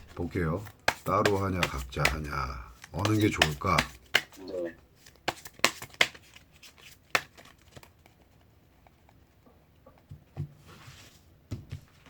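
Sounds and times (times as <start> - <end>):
cards clicking: 0.6 - 8.2
cards brushing rustle: 5.0 - 9.4.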